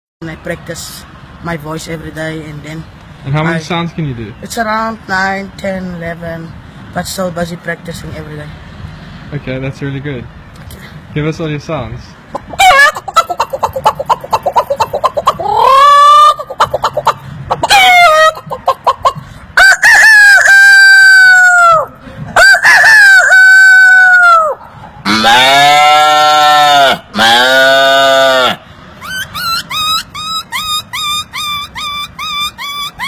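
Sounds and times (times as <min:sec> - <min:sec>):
man imitating hen clucking: 0:12.3 - 0:33.0
low animal call imitation: 0:12.4 - 0:18.8, 0:19.7 - 0:33.0
man imitating rooster crows: 0:15.4 - 0:16.4, 0:19.6 - 0:28.6.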